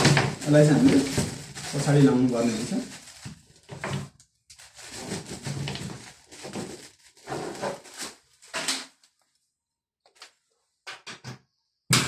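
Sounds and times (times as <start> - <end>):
plastic caps rubbing and knocking: 0.0 - 8.8.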